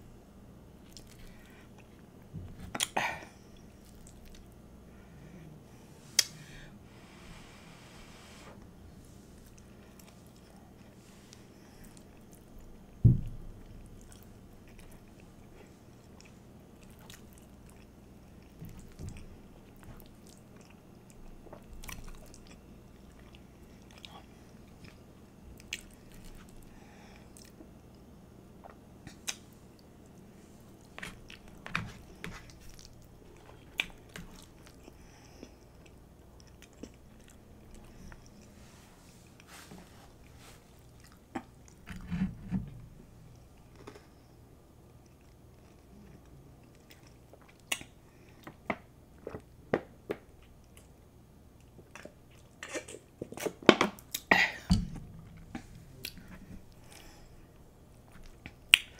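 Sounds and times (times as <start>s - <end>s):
chewing and biting: 16.0s - 26.6s
heavy low thump: 54.7s - 55.9s.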